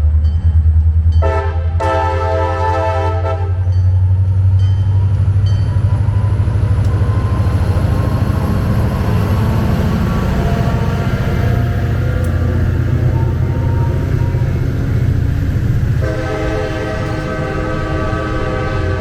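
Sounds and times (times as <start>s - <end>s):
diesel engines rumbling: 0.0s - 19.0s
train horn blast: 1.2s - 3.8s, 10.0s - 19.0s.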